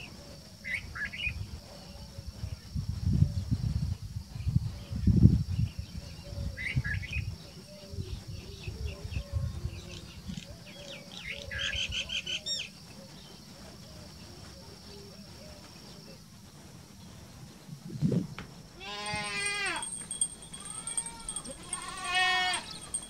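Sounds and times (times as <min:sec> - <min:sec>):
low rumbling noise: 0:17.0 - 0:18.8.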